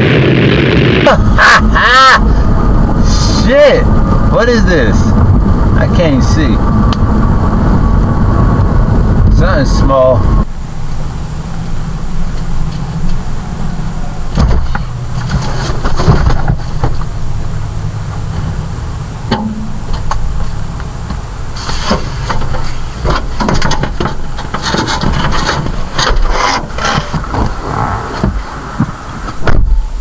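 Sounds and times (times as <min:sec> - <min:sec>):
car engine running: 0:00.0 - 0:29.6
knocks clunks and rattles: 0:14.3 - 0:17.2, 0:19.3 - 0:29.8.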